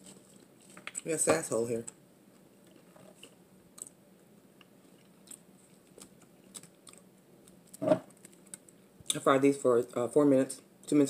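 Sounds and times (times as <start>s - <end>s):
chewing with mouth clicks: 4.6s - 8.7s.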